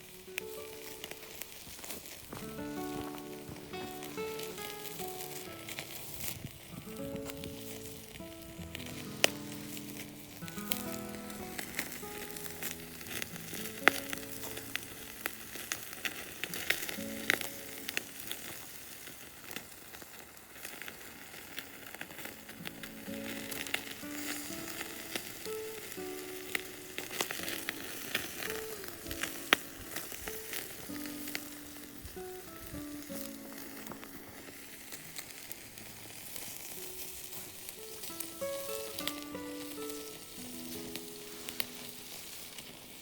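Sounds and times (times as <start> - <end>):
soft background music: 0.0 - 18.5, 22.2 - 43.0
sharp pops from fire: 0.0 - 43.0
wood fire crackling: 0.0 - 43.0.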